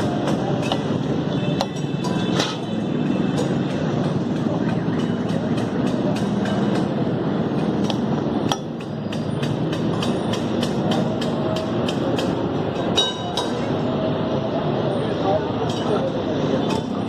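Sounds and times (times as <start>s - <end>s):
metal spatulas clanging on griddle: 1.7s - 2.7s.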